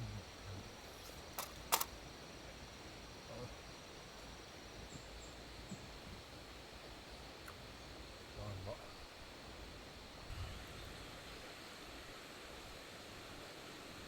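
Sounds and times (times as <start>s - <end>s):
insects chirring: 0.0s - 14.0s
sharp clicks: 1.4s - 2.0s.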